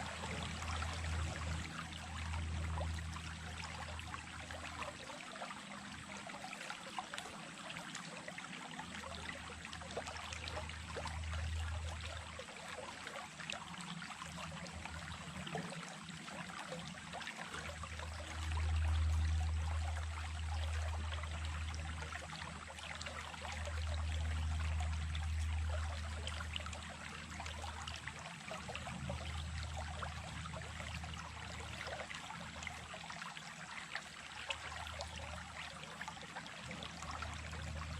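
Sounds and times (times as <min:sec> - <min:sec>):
stream trickling over stones: 0:00.0 - 0:37.9.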